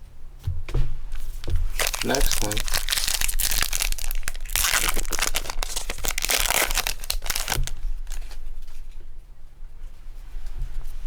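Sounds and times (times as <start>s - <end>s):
wrapper rustling: 1.1s - 8.5s
foil wrapper tearing and crinkling: 1.2s - 8.4s.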